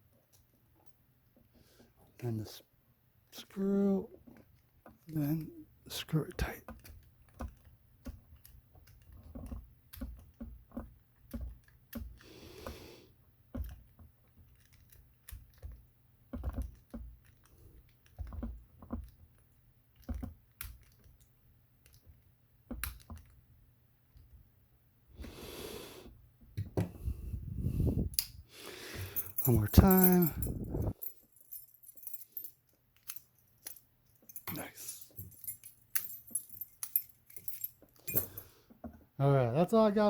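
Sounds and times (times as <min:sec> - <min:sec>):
metal padlock parts clicking: 0:13.6 - 0:23.4, 0:29.2 - 0:38.4.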